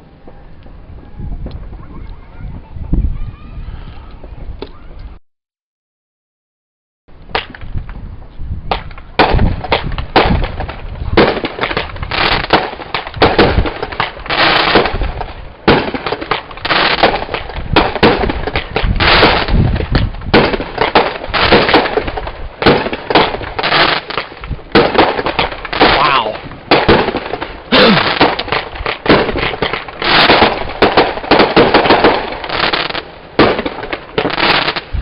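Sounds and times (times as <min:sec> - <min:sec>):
fireworks banging and crackling: 0:07.2 - 0:35.0.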